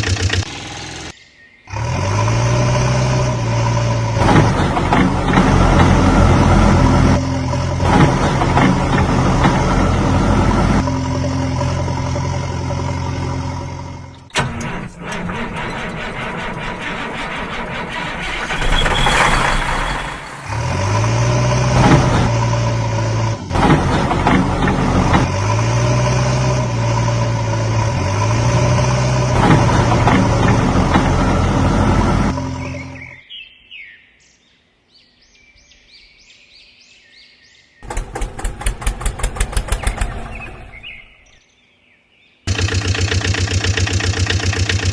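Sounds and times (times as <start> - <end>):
heavy vehicle engine running: 0.0 - 33.2, 37.8 - 41.2, 42.5 - 44.9
rough noise: 17.9 - 25.4.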